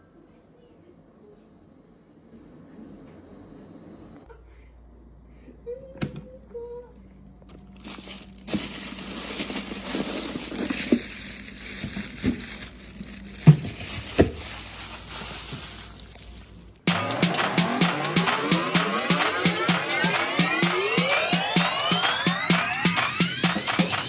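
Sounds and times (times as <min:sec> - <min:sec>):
rustling crinkling handling noise: 0:07.0 - 0:16.9.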